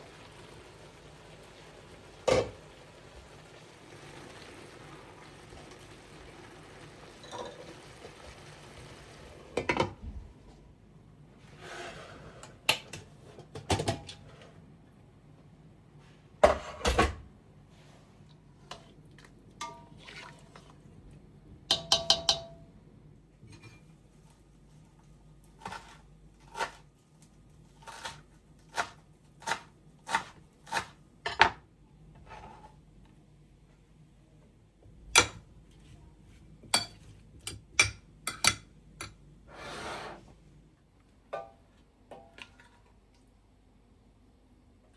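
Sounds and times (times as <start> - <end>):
dishes and utensils clinking: 7.2 - 7.7, 19.6 - 20.4, 21.7 - 22.6, 36.7 - 39.2.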